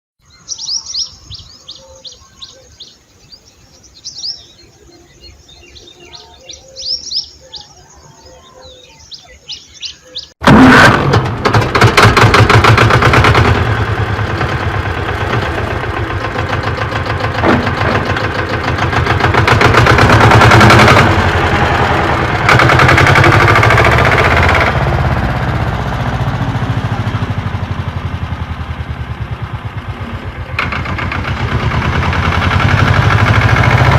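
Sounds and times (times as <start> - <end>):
birds chirping: 0.2 - 10.4
loud rapid mechanical rattle: 10.4 - 26.8, 30.5 - 33.9.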